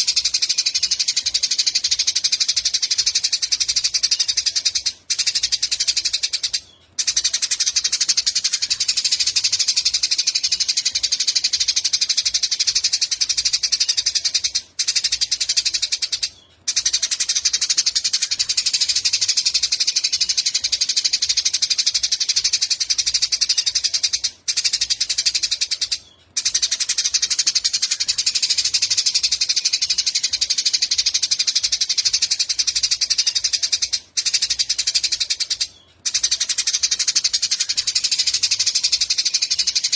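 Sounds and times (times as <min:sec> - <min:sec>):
sparrows chirping rapidly: 0:00.0 - 0:39.9.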